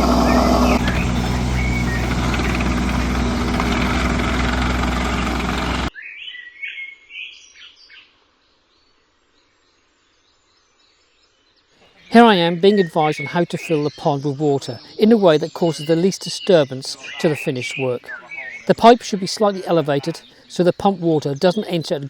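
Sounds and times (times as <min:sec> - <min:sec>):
digger engine running: 0:00.0 - 0:05.9
bird chirps: 0:00.0 - 0:08.1, 0:10.3 - 0:22.0.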